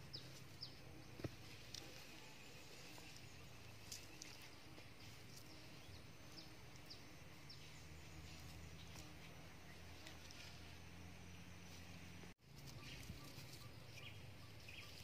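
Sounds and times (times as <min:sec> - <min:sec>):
low steady hum: 0:00.0 - 0:15.0
small birds chirping: 0:00.0 - 0:15.0.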